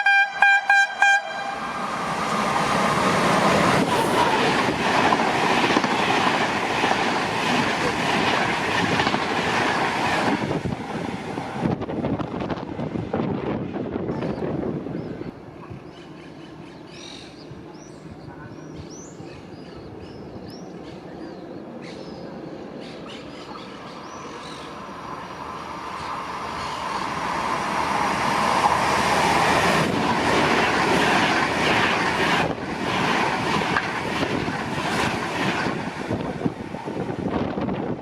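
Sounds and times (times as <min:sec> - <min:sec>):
train wheels on rails: 0:00.9 - 0:16.9, 0:23.1 - 0:38.0
birds chirping: 0:14.1 - 0:27.4.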